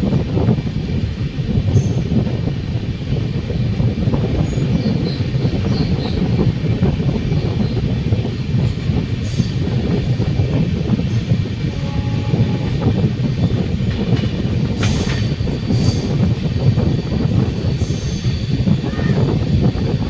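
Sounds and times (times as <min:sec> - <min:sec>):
train rumbling and rattling: 0:00.0 - 0:20.0
high wheel squeals: 0:14.8 - 0:20.0.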